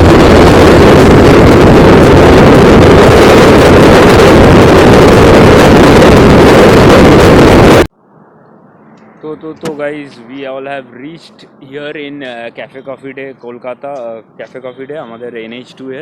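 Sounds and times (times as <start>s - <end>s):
wind noise on microphone: 0.0s - 9.9s.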